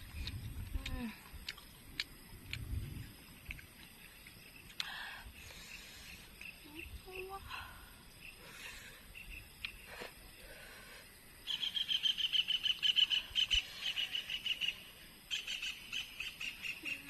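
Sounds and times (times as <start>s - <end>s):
animal chirping trill: 11.5s - 17.0s.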